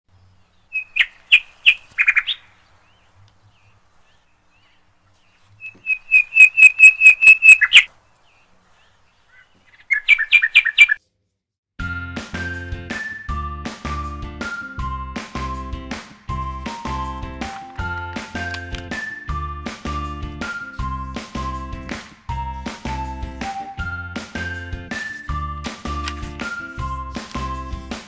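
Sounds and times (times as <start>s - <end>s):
bird chirping high notes: 0.7s - 3.0s, 5.6s - 7.9s, 9.3s - 11.0s
music: 11.8s - 28.0s.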